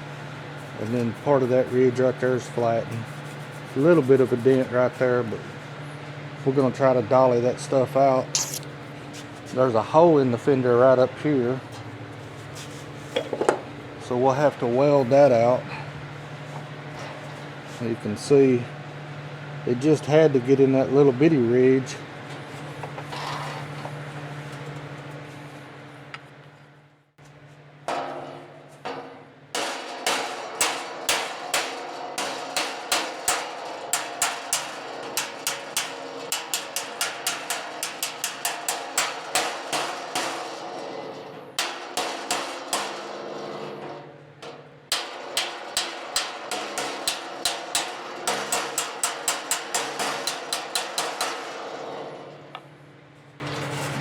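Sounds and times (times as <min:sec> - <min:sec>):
hammer striking sheet metal: 0:27.9 - 0:52.6.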